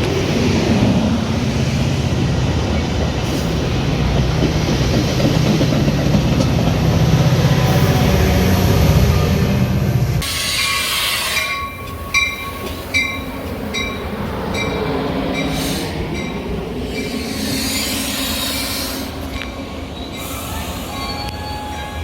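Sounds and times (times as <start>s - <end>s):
train rumbling: 0.0s - 22.0s
metallic clicks of train wheels: 10.2s - 21.5s.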